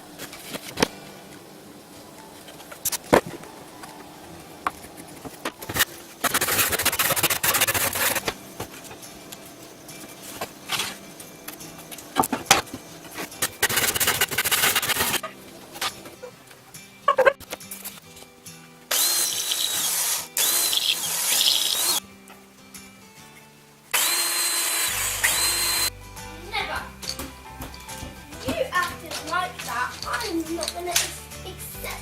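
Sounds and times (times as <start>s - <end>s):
scraping: 4.6s - 9.0s, 10.0s - 16.4s.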